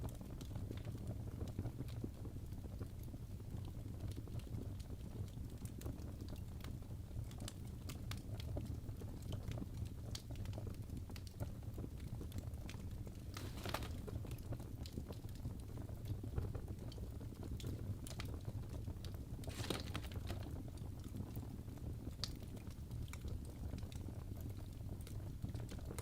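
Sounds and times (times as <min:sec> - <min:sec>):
fire crackling in fireplace: 0:00.0 - 0:26.0
hissing flare-ups: 0:13.1 - 0:14.3.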